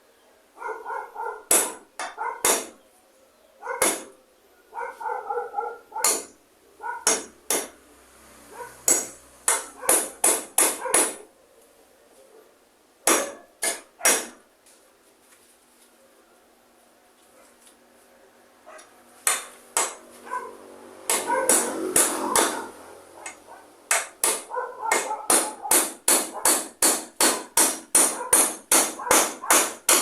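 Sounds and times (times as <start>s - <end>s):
dog barking: 0.6s - 2.6s, 3.6s - 7.3s, 8.5s - 8.9s, 9.6s - 11.4s, 12.2s - 14.3s, 17.3s - 17.6s, 18.6s - 19.0s, 20.2s - 20.6s, 21.2s - 23.8s, 24.4s - 26.6s, 27.3s - 29.8s
hammer striking nails: 1.5s - 2.8s, 3.8s - 4.2s, 6.0s - 6.4s, 7.0s - 7.8s, 8.9s - 11.2s, 13.0s - 14.4s, 19.2s - 20.1s, 21.1s - 22.6s, 23.9s - 30.0s.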